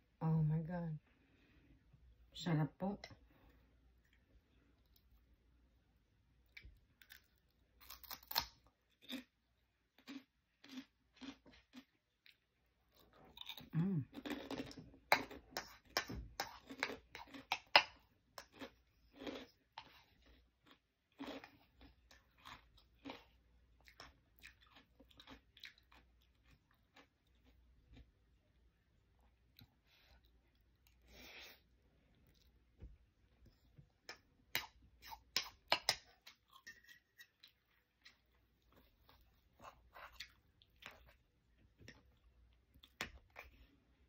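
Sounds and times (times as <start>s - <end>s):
crunchy food chewing: 6.4s - 28.2s.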